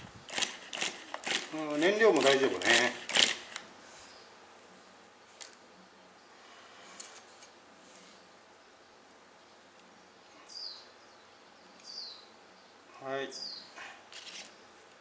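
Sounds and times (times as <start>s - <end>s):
bird chirping: 8.7s - 13.8s.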